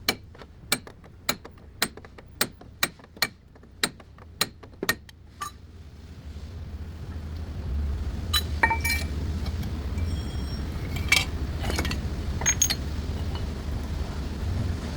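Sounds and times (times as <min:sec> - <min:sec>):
steady low hum: 0:00.0 - 0:14.9
metal tools clinking: 0:08.4 - 0:13.5.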